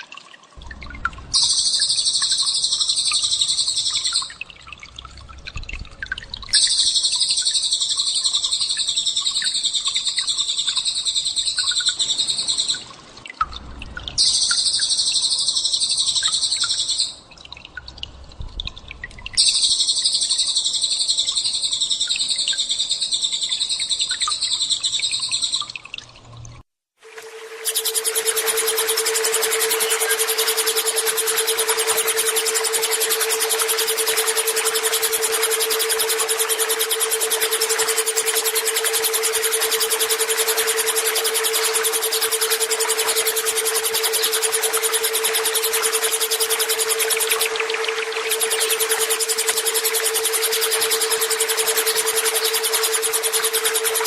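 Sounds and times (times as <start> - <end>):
low hum: 0.6 - 6.7, 13.4 - 14.4, 27.1 - 54.0
rapid buzzing bird trills: 0.6 - 17.2, 19.4 - 25.7, 27.0 - 54.0
faint bird chirps: 0.7 - 4.8, 6.1 - 12.9, 14.0 - 17.2, 19.4 - 25.8, 27.4 - 54.0.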